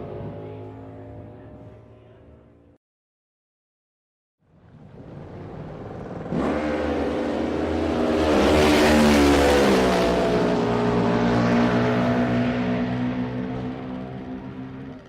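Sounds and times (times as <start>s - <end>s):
motorcycle engine revving: 6.0s - 15.0s.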